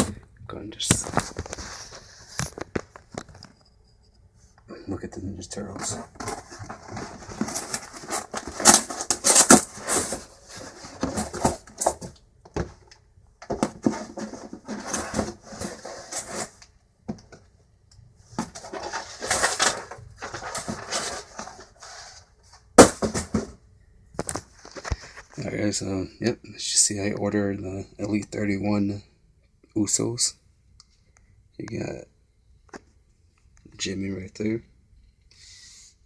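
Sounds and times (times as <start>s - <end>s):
cardboard and plastic rustling: 0.8s - 3.5s, 5.4s - 17.5s, 18.3s - 23.6s, 24.2s - 25.6s.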